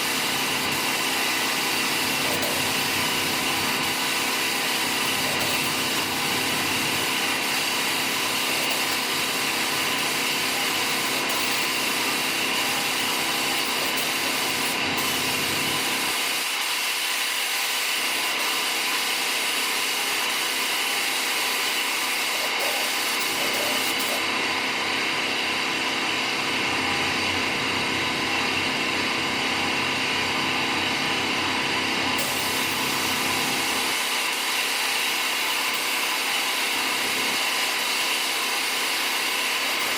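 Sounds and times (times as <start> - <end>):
machine motor whirring: 0.1 - 16.3, 22.2 - 24.4.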